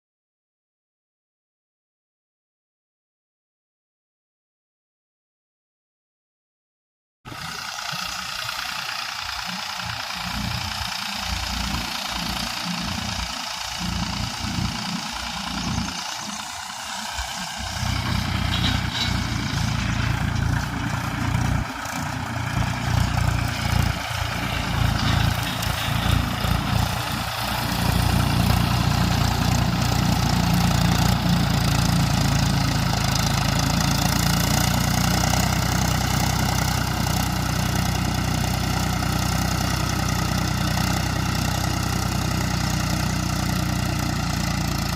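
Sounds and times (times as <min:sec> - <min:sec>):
tractor diesel engine running: 0:07.3 - 0:44.9.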